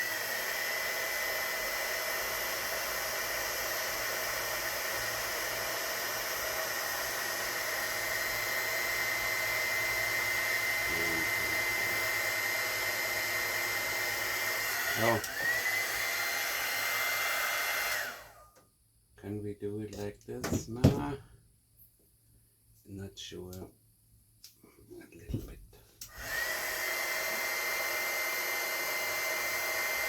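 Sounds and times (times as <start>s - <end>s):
heat gun blowing: 0.0s - 18.4s, 26.0s - 30.0s.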